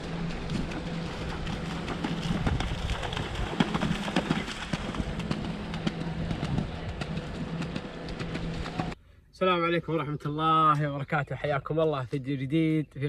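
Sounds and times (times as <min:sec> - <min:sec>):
steady low hum: 0:00.0 - 0:13.0
horse hooves clopping: 0:00.1 - 0:09.0.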